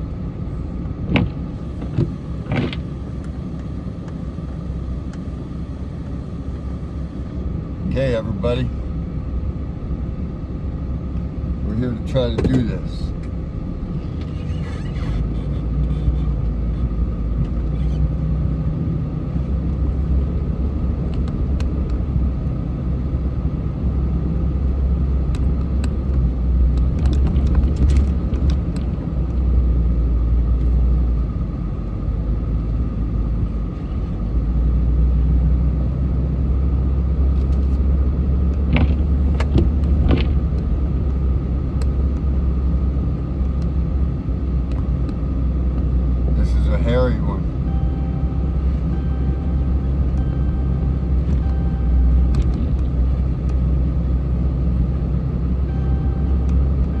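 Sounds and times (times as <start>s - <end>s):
car engine and road noise: 0.0s - 57.0s
faint steady whine: 38.7s - 57.0s.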